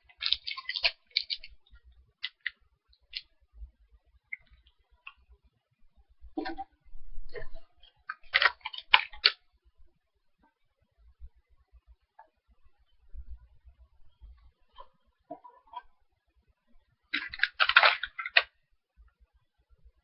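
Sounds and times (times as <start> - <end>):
person chewing crunchy snack: 0.0 - 1.5.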